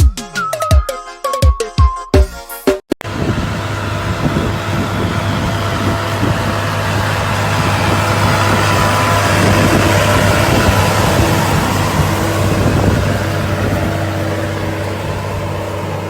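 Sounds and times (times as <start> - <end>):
music: 0.0 - 2.9
vehicle engine running: 3.0 - 16.0.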